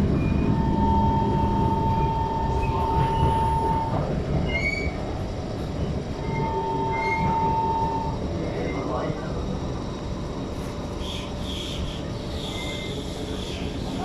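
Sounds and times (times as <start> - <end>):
wheels squealing on rails: 0.0 - 5.1, 6.2 - 9.0, 11.0 - 14.0
train running rumble: 0.0 - 14.0.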